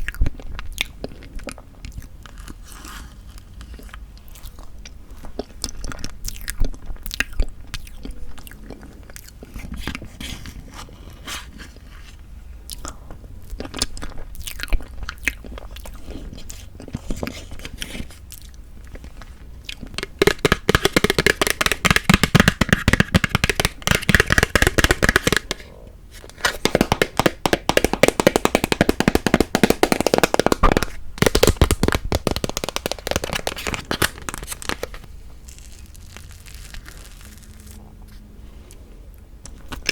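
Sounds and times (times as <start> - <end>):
close chewing and wet mouth sounds: 0.0 - 10.7, 12.6 - 20.0.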